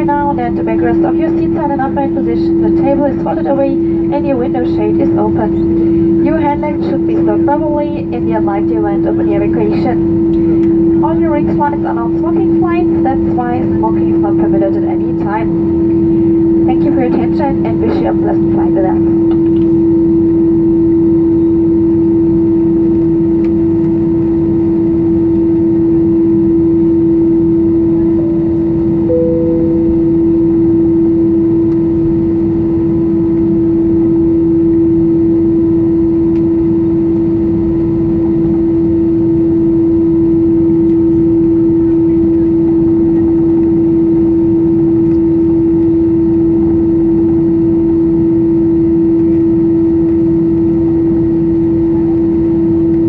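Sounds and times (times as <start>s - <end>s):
jet engines humming in cabin: 0.0s - 53.0s
brief higher tone: 29.1s - 31.4s.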